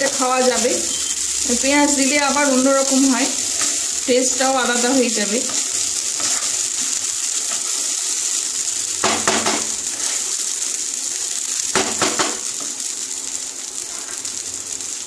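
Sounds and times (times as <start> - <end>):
food sizzling in a wok: 0.0 - 15.0
wooden spatula scraping: 2.0 - 8.3, 9.7 - 10.4, 13.8 - 14.3.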